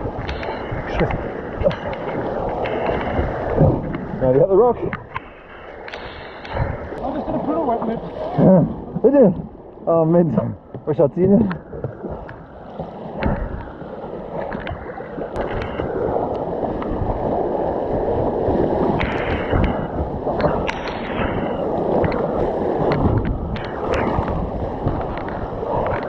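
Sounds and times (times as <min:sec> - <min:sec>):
river water rushing: 0:00.0 - 0:04.4
sharp water splashes: 0:00.0 - 0:26.0.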